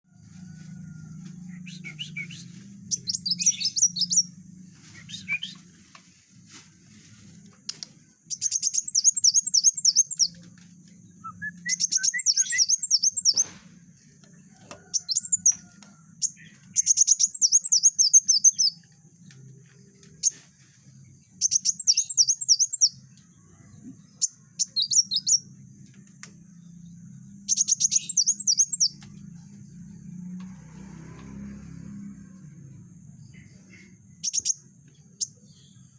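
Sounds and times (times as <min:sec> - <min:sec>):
sunbird chirping: 0:01.4 - 0:35.9
faint low hum: 0:18.5 - 0:35.9.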